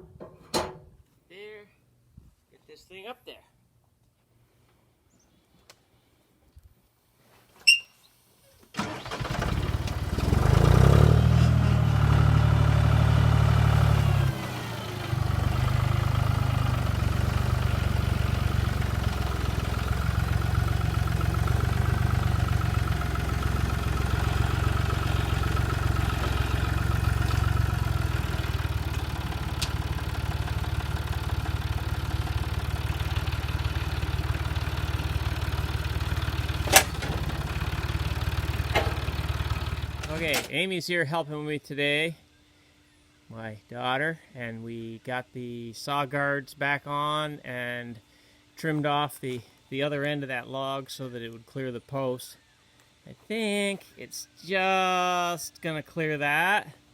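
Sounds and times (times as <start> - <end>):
band sawmill motor running: 9.2 - 40.5.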